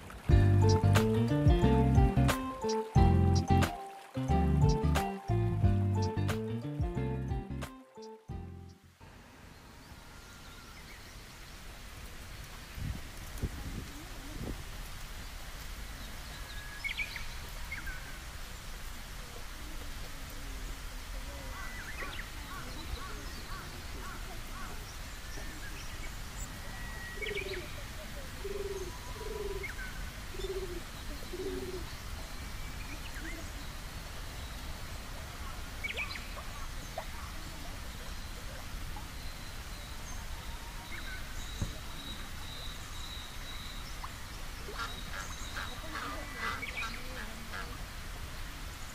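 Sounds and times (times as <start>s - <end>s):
small birds chirping: 0.3s - 3.7s, 20.3s - 47.8s
bird cooing: 26.7s - 32.0s.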